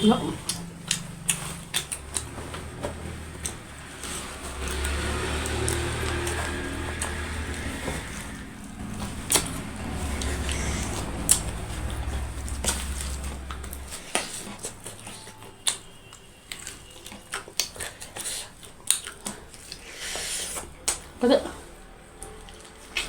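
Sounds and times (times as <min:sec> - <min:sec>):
chewing and crunching food: 0:00.0 - 0:23.0
low rumble: 0:02.1 - 0:14.2.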